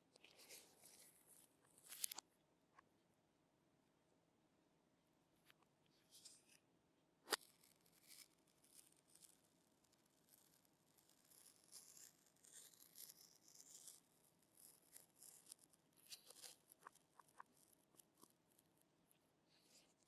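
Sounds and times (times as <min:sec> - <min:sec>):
objects being handled: 0:00.2 - 0:02.2.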